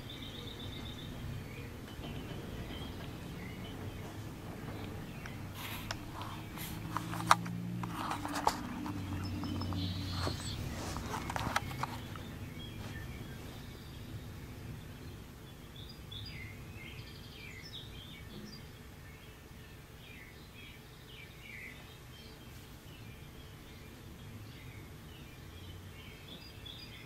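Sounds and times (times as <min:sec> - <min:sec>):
small birds chirping: 0:00.0 - 0:27.0
phone being handled: 0:05.6 - 0:12.3.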